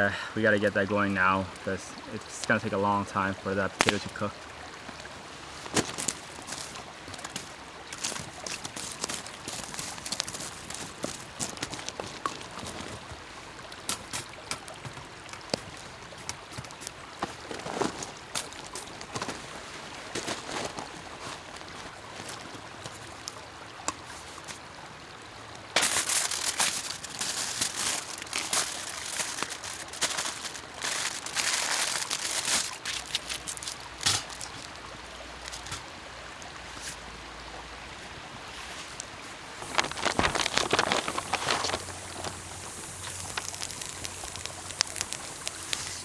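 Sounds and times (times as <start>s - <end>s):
water trickling: 0.0s - 46.0s
small crackles: 0.6s - 37.0s, 38.5s - 46.0s
material crinkling and rustling: 3.8s - 4.2s, 4.8s - 13.3s, 13.9s - 23.4s, 25.7s - 34.8s, 39.6s - 46.0s.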